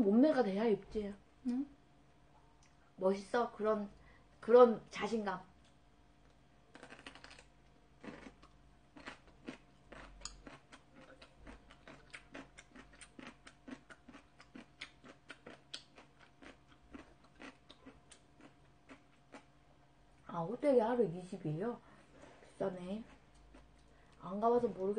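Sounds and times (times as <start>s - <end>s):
person chewing food: 6.7s - 19.6s, 23.0s - 24.2s.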